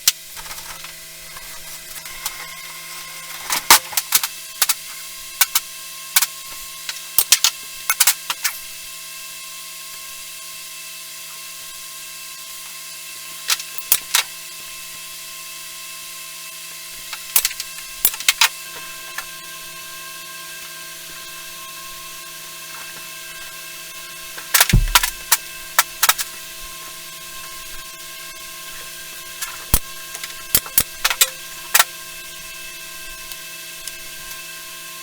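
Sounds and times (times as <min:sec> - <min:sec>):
steady hum: 0:22.7 - 0:34.4
sharp knocks and clicks of tools: 0:24.5 - 0:25.4.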